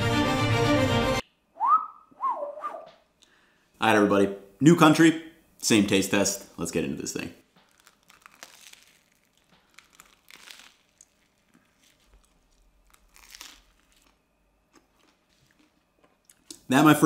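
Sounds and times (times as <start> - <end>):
bread being bitten and chewed: 7.4 - 16.6
faint bread crunches: 7.4 - 16.6.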